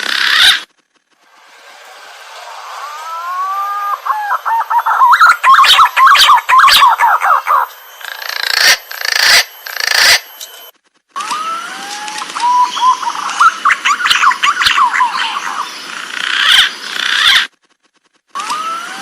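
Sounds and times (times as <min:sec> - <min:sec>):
pigeon whistling and warbling: 0:03.1 - 0:10.2, 0:12.4 - 0:15.7.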